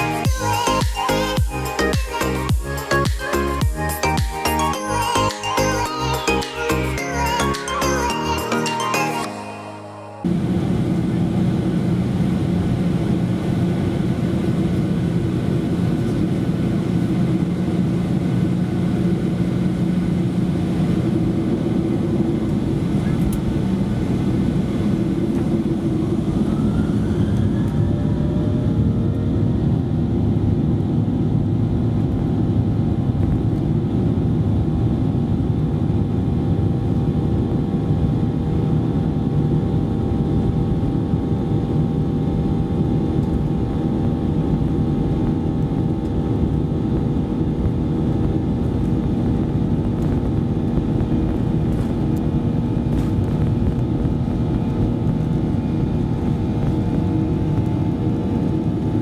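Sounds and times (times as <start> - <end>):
loud continuous rumble: 0.0 - 59.0
jet engine whine: 2.1 - 59.0.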